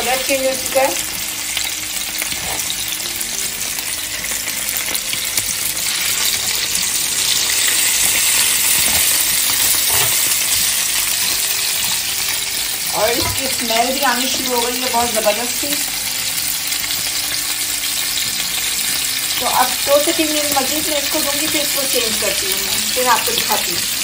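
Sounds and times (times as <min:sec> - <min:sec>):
chicken sizzling in oil in a pan: 0:00.0 - 0:24.0
metal tongs turning food: 0:04.7 - 0:14.0.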